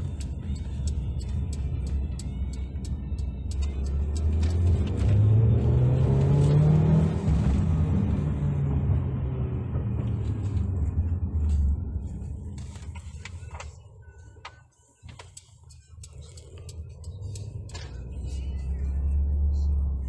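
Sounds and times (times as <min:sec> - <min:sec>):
car engine accelerating: 0:00.0 - 0:14.3, 0:15.3 - 0:20.0
road rumble inside car: 0:00.0 - 0:20.0.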